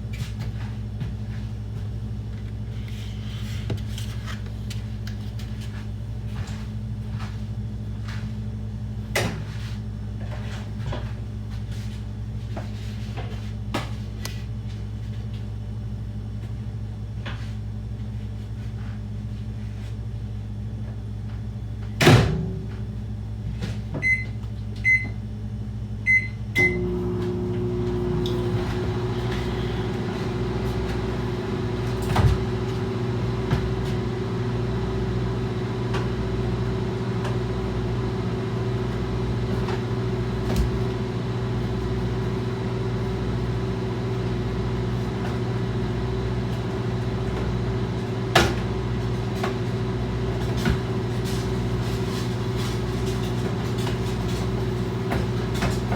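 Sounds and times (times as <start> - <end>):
low appliance hum: 0.0 - 55.9
microwave running hum: 0.0 - 55.9
microwave door shutting: 26.6 - 34.3.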